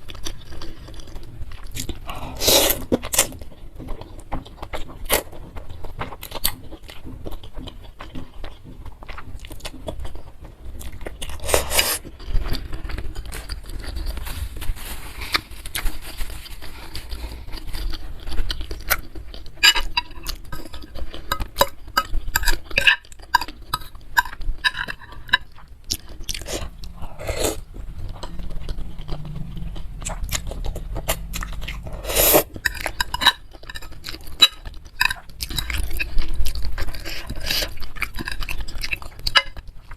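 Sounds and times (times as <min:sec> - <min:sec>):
close chewing and eating: 0:00.0 - 0:39.9
slurping: 0:01.7 - 0:03.4, 0:24.2 - 0:39.4.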